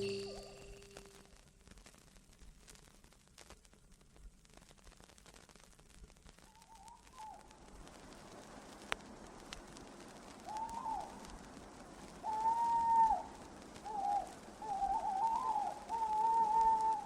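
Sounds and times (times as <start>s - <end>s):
owl hooting: 0.0s - 1.2s, 6.5s - 7.5s, 10.4s - 11.3s, 12.1s - 17.0s.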